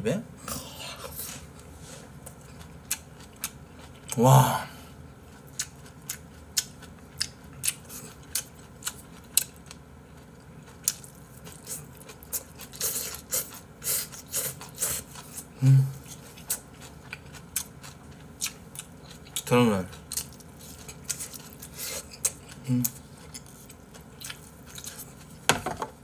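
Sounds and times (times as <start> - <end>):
person chewing food: 0.5 - 4.2, 5.2 - 26.0
person humming: 4.2 - 4.8, 15.6 - 16.0.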